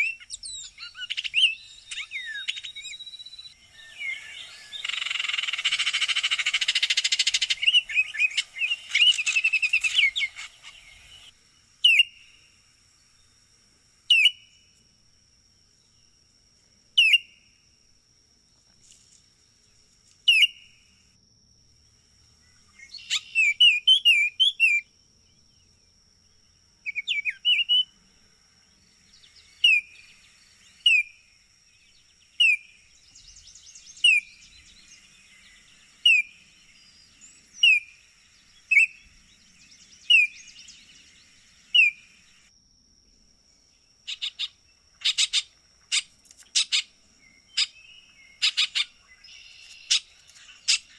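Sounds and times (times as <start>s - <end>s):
bird whistled notes: 0.0s - 12.2s
bird harsh chatter call: 4.0s - 11.3s.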